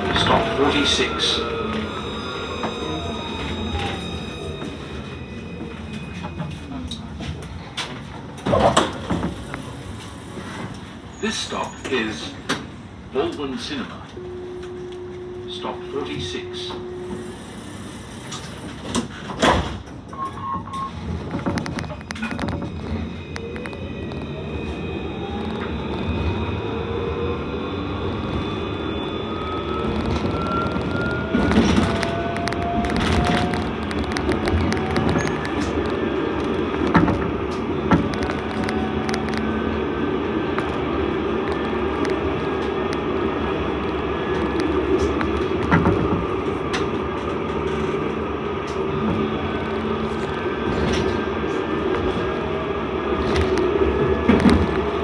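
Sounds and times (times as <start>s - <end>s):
tram clatter: 0.0s - 55.0s
tram running rumble: 0.0s - 55.0s.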